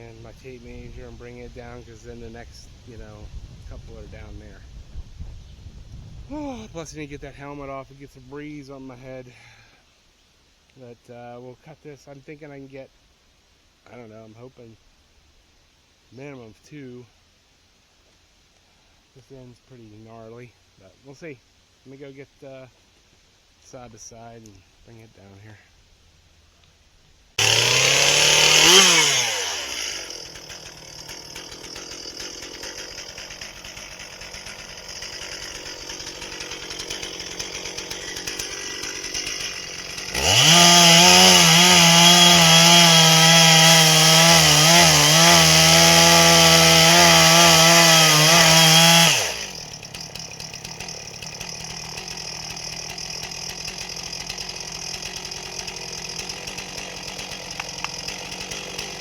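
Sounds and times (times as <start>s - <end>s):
chainsaw cutting through log: 27.4s - 59.0s
chainsaw idling and revving: 27.4s - 59.0s.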